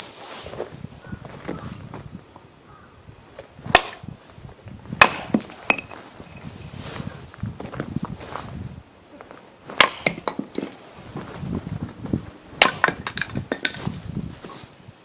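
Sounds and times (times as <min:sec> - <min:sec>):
axe splitting logs: 0:03.6 - 0:04.1, 0:04.9 - 0:06.0, 0:09.7 - 0:10.8, 0:12.6 - 0:14.6
split wood pieces landing: 0:03.7 - 0:04.1, 0:04.9 - 0:06.0, 0:09.7 - 0:10.8, 0:12.6 - 0:14.0.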